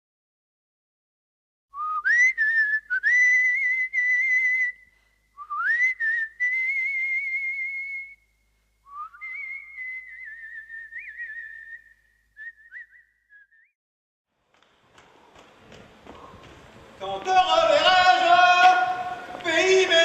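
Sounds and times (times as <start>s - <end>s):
person whistling: 1.8s - 8.2s, 8.8s - 13.7s.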